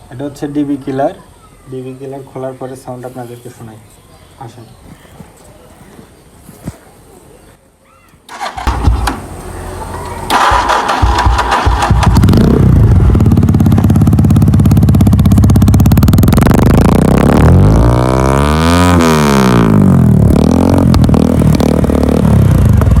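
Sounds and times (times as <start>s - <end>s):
motorcycle exhaust idling and revving: 8.6s - 23.0s.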